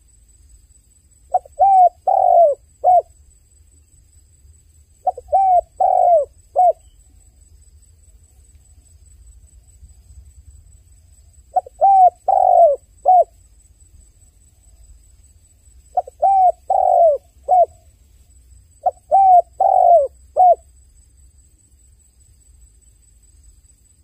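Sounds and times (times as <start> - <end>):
dove cooing: 1.3 - 3.1, 5.0 - 6.9, 11.5 - 13.3, 15.9 - 17.8, 18.8 - 20.6.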